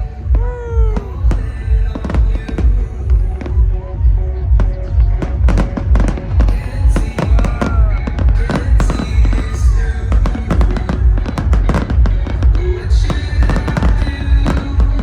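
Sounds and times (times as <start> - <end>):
electronic dance music: 0.0 - 15.0
fireworks cracking and popping: 4.6 - 15.0.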